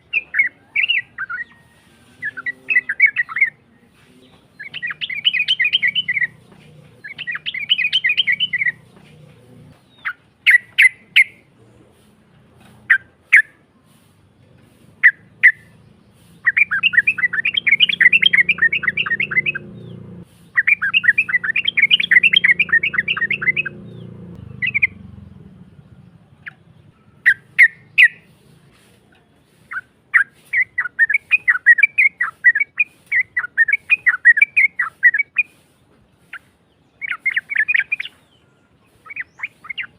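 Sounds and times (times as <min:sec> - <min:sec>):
bulbul singing with rough voice: 0:00.0 - 0:11.5, 0:12.8 - 0:28.8, 0:37.0 - 0:39.9.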